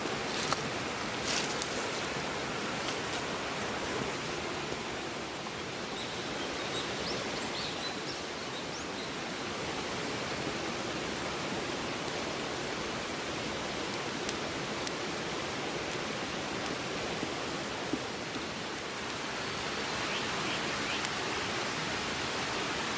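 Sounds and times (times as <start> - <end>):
river flowing: 0.0 - 22.9
campfire pops: 1.4 - 1.8, 13.9 - 15.0.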